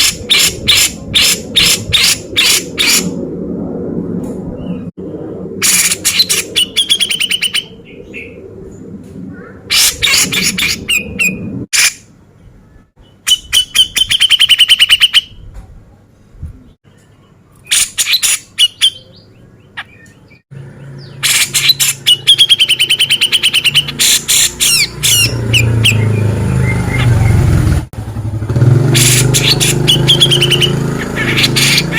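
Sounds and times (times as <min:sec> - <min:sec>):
bird calling with harsh rattling notes: 0:00.0 - 0:03.2, 0:05.6 - 0:07.8, 0:09.3 - 0:12.1, 0:12.9 - 0:15.4, 0:17.0 - 0:19.2, 0:21.0 - 0:27.8, 0:28.9 - 0:31.9.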